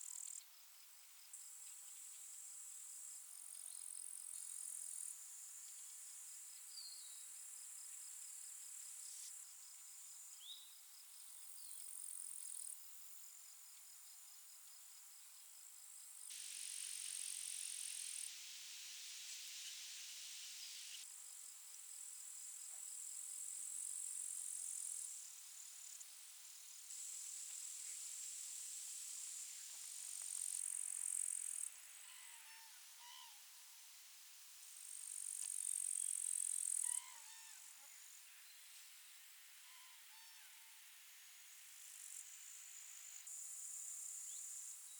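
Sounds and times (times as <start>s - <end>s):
insects chirring: 16.3s - 33.3s, 34.8s - 37.6s
faint bird chirps: 30.6s - 33.4s, 35.9s - 40.8s.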